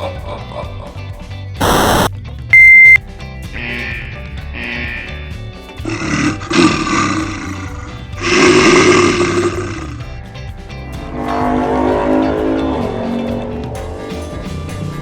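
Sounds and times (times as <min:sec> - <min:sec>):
loud roars: 0:05.9 - 0:10.0.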